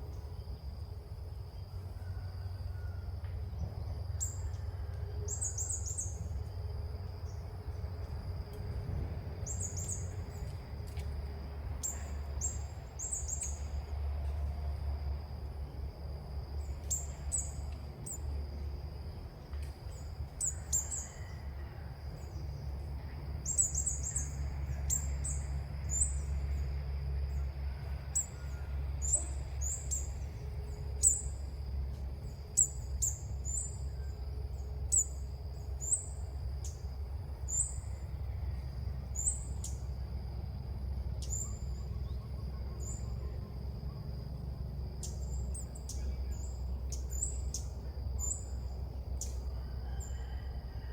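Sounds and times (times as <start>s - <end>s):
low steady rumble: 0.0s - 50.9s
small birds chirping: 45.0s - 48.6s.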